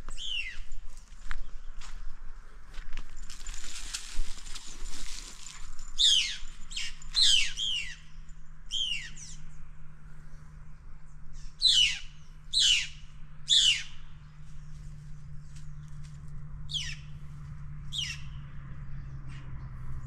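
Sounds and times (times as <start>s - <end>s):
bird calling sharp downward notes: 11.4s - 14.0s.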